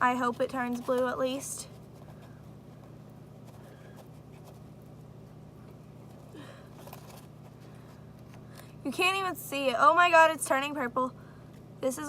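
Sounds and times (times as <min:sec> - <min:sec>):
low steady hum: 0:00.0 - 0:12.0
faint handling noise: 0:00.2 - 0:08.8.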